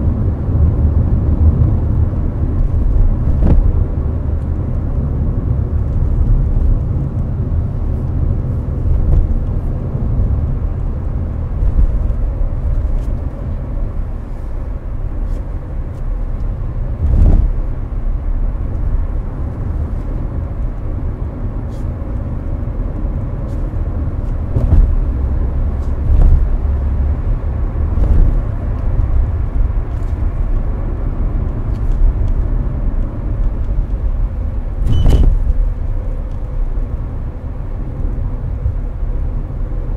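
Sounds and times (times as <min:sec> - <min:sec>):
air-conditioning noise: 0:00.0 - 0:39.9
road and tyre rumble: 0:00.0 - 0:39.9
short thumps: 0:24.5 - 0:25.1.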